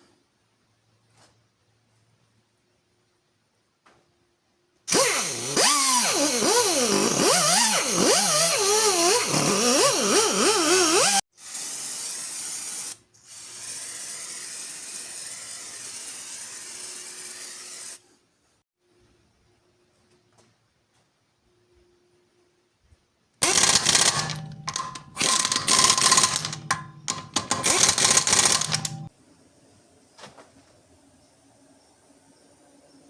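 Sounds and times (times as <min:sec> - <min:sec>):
power tool whining: 0:04.9 - 0:11.2, 0:23.4 - 0:29.1.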